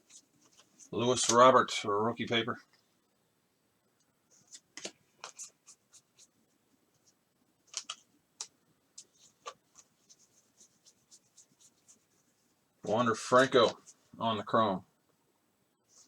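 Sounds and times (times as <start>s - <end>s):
cards flipping and sliding: 0.1s - 1.4s, 4.4s - 6.0s, 7.7s - 9.9s.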